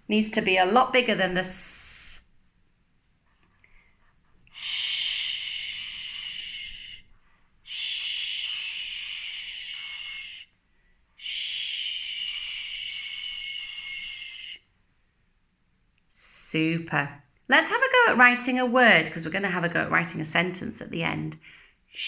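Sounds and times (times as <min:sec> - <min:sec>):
woman saying shh: 0:01.4 - 0:02.3, 0:04.6 - 0:07.1, 0:07.7 - 0:10.5, 0:11.2 - 0:14.6.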